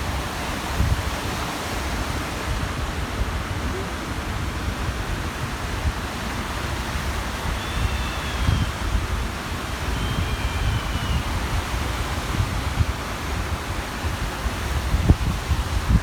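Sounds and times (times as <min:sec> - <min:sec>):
small waves washing on shore: 0:00.0 - 0:16.0
wind gusting on microphone: 0:00.0 - 0:16.0
faint high cry: 0:03.6 - 0:04.1, 0:07.3 - 0:09.0, 0:09.9 - 0:11.6.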